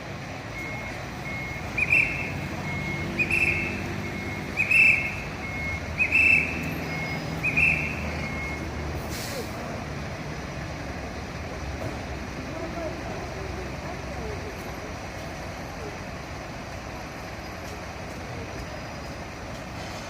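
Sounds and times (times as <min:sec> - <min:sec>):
fire truck engine running: 0:00.0 - 0:20.0
electronic warning beep: 0:00.5 - 0:08.8.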